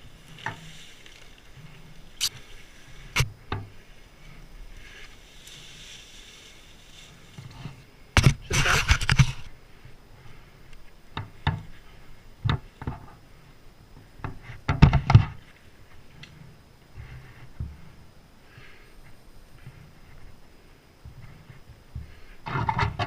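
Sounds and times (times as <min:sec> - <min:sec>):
knocks and clattering impacts: 0:14.2 - 0:15.4.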